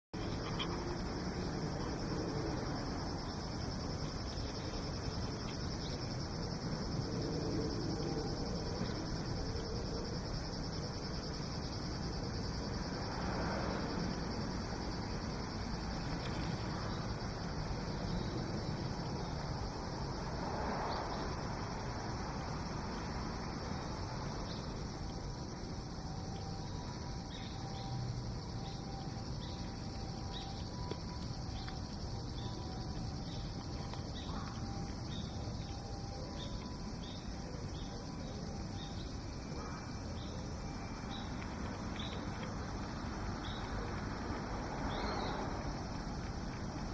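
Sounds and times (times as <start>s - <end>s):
insects chirring: 0.2s - 46.9s.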